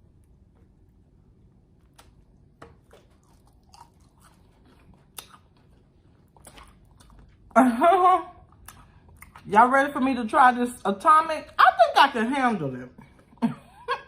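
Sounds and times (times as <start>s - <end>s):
chewing and mouth sounds: 1.8s - 7.6s, 8.4s - 9.5s.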